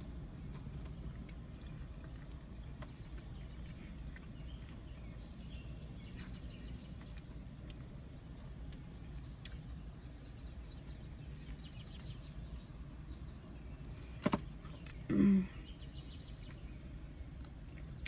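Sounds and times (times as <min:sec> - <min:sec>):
closed-mouth mm hum: 0:00.0 - 0:18.0
steady low background hum: 0:00.0 - 0:18.0
person chewing: 0:00.4 - 0:05.2, 0:06.1 - 0:10.0.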